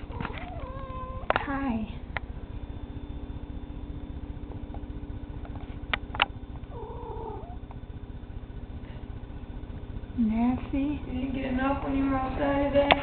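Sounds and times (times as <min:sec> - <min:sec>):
cat yowling: 0:00.0 - 0:01.4, 0:06.7 - 0:07.6
low hum: 0:00.0 - 0:13.0.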